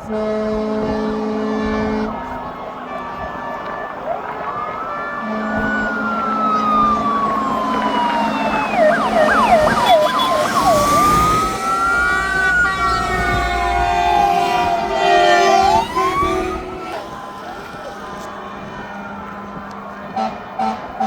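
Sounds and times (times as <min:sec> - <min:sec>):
siren wailing: 0:00.0 - 0:20.9
fire engine rumble: 0:00.0 - 0:21.0
siren fast yelp: 0:02.5 - 0:18.3.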